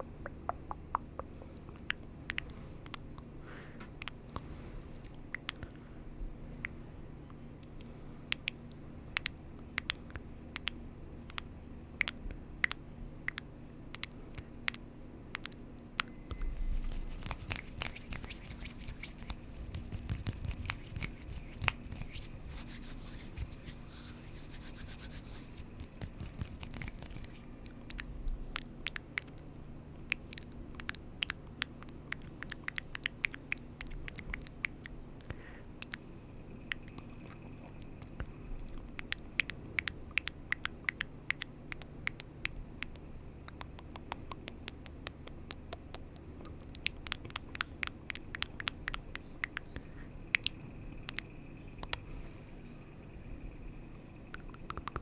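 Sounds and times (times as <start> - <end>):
scratchy rubbing: 16.4 - 27.4
small sharp clicks: 54.3 - 55.0.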